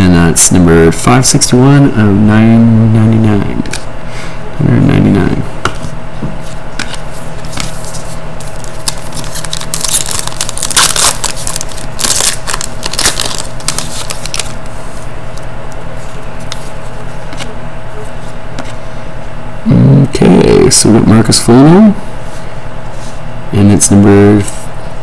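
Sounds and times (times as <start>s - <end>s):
steady low hum: 0.0s - 25.0s
trading cards rustling and sliding: 5.7s - 15.1s.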